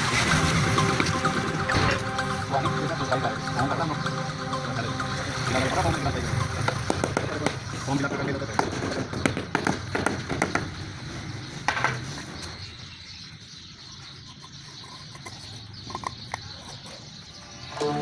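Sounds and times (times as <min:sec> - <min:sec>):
sharp knocks and taps: 0:06.6 - 0:10.9.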